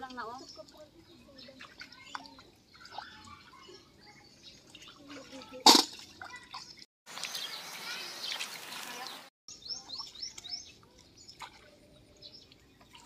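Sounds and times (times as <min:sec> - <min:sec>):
bird chirping: 0:06.3 - 0:13.0.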